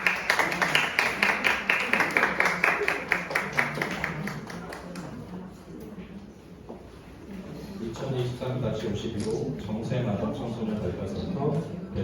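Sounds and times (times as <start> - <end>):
small audience clapping: 0.0 - 5.3.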